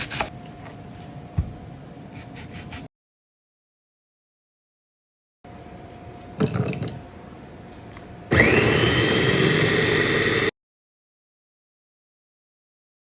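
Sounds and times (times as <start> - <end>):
food chopper motor whining: 8.3 - 10.5.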